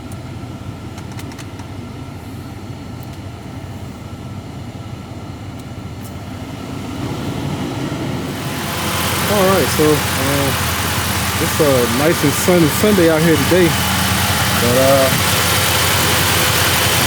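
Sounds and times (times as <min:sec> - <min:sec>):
faint engine ticks: 0:00.0 - 0:02.1, 0:02.8 - 0:04.2, 0:05.4 - 0:06.2, 0:08.4 - 0:17.0
car engine idling: 0:01.7 - 0:17.0.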